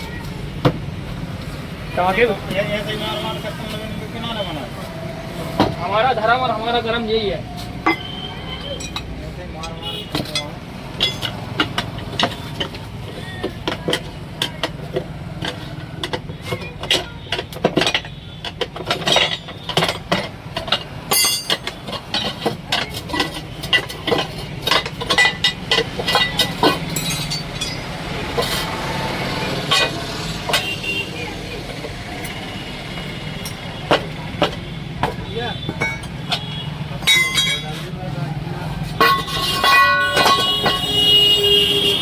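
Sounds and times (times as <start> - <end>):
hammer striking steel wheel rim: 7.8 - 16.7, 17.3 - 31.1, 31.8 - 37.9, 38.9 - 42.0.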